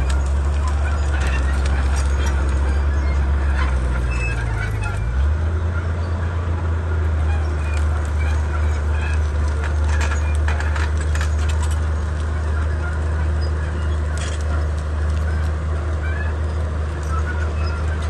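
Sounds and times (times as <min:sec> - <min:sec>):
sharp clicks and cracks: 0:00.0 - 0:05.0, 0:07.6 - 0:16.0
bulldozer diesel engine drone: 0:00.0 - 0:18.0.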